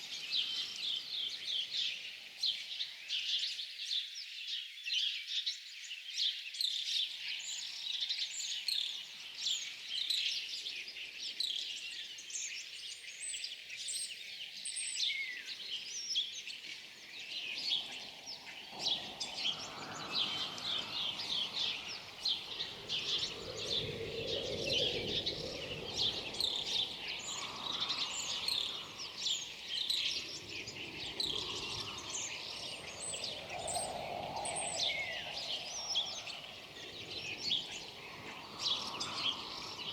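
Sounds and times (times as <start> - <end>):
small birds chirping: 0.0 - 39.9
low rushing wind: 17.2 - 39.9.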